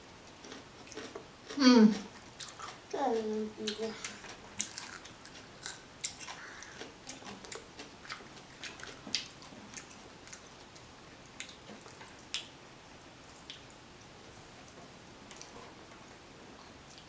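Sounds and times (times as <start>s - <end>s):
wet mouth chewing clicks: 2.2s - 2.8s, 3.6s - 12.5s.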